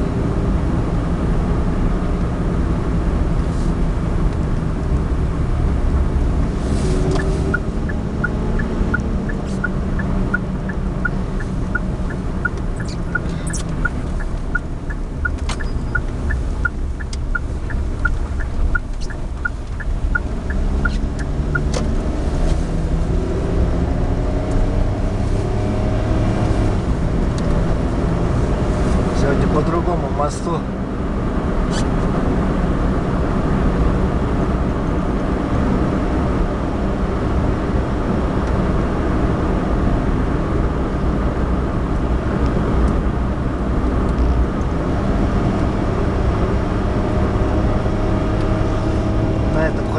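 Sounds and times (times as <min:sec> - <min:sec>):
car engine and road noise: 0:00.0 - 0:49.9
light ticking: 0:07.1 - 0:21.8.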